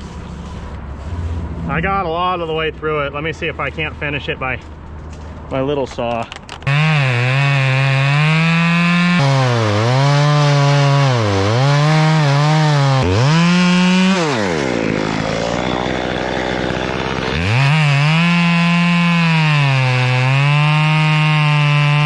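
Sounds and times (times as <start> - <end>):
chainsaw cutting wood: 6.5 - 22.0.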